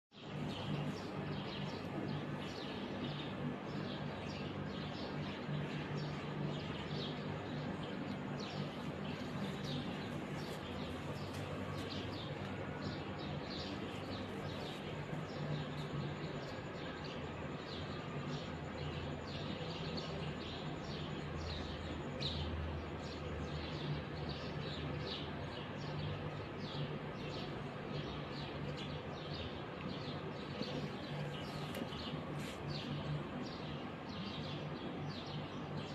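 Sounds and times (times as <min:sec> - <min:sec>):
small birds chirping: 0:00.1 - 0:35.9
steady low hum: 0:00.1 - 0:35.9.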